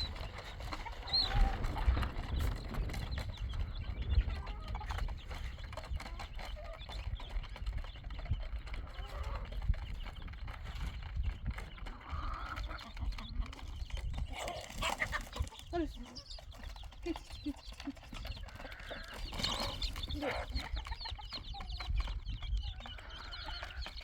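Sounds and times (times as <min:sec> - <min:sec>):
constant low rumble: 0:00.0 - 0:14.4
hoof steps: 0:00.0 - 0:24.0.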